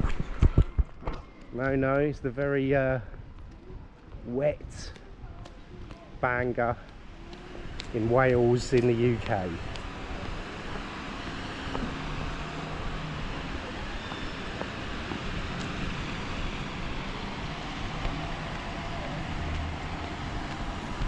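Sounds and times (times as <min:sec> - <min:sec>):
traffic on wet roads: 0:05.7 - 0:21.0
low engine hum: 0:06.8 - 0:21.0.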